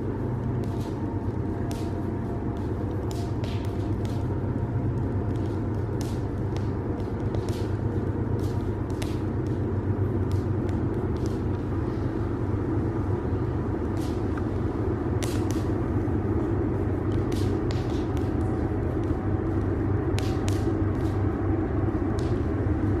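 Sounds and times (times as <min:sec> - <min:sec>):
steady low rumble: 0:00.0 - 0:23.0
campfire crackling and popping: 0:02.6 - 0:11.6.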